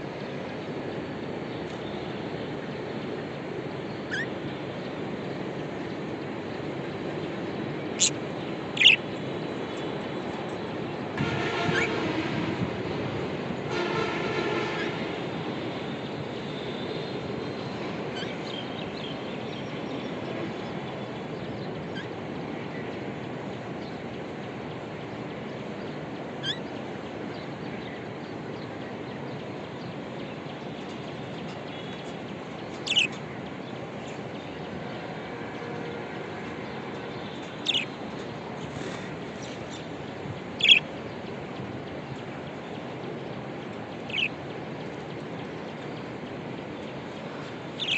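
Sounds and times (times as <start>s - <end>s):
budgerigar chirps: 8.8s - 9.0s, 32.8s - 33.1s, 37.6s - 37.9s, 40.6s - 40.8s
budgie chirps: 8.8s - 9.0s, 40.6s - 40.8s.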